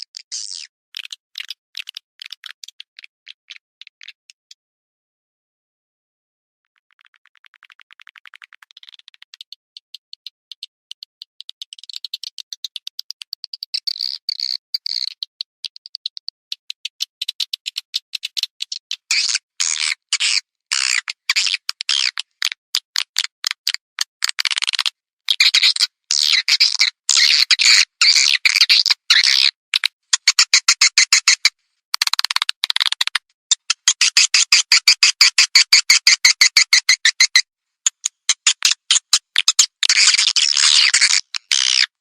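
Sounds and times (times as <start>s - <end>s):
rapid high bird clicks: 0.1s - 4.5s, 6.9s - 42.0s
bird twittering chirps: 8.8s - 19.9s.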